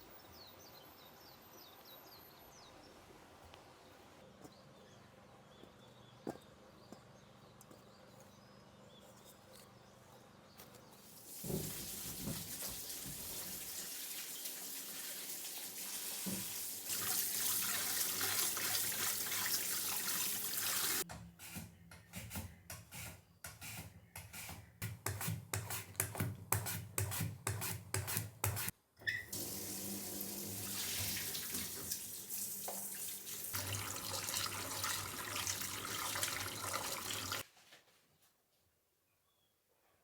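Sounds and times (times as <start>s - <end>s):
tap water running into sink: 11.2s - 21.0s, 29.3s - 37.4s
splashes and knocks in sink: 11.3s - 13.7s, 16.1s - 17.1s.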